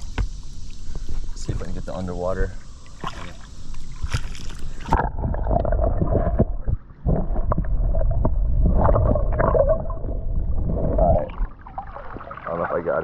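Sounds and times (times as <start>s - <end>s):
muffled underwater rushing: 0.9s - 13.0s
water splash: 2.8s - 12.9s.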